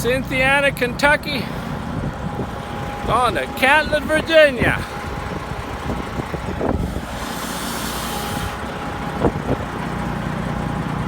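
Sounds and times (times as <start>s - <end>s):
truck engine running: 0.0s - 11.0s
air hissing: 6.5s - 9.4s.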